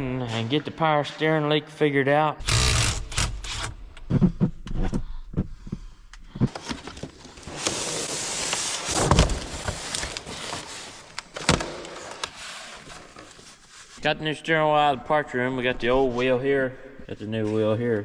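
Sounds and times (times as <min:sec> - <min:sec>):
objects rustling and scraping: 0:05.7 - 0:14.0.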